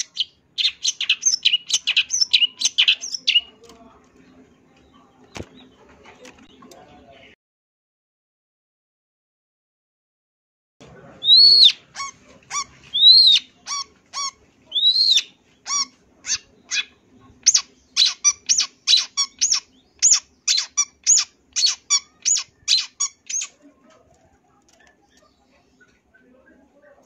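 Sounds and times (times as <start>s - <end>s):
shrike singing: 0.0s - 3.7s.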